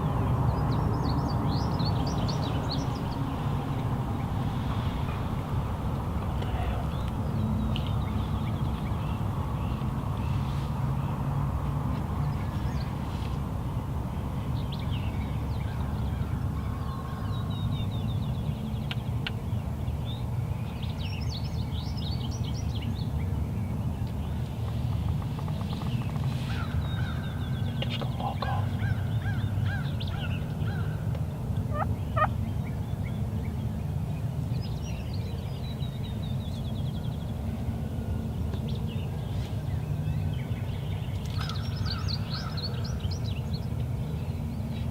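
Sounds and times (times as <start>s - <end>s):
songbird chirps: 0.0s - 44.9s
turkey gobbling: 31.7s - 32.3s.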